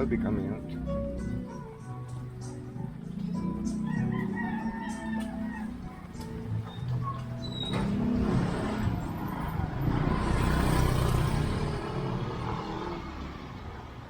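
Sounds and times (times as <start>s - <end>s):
motor vehicle passing: 0.0s - 14.0s.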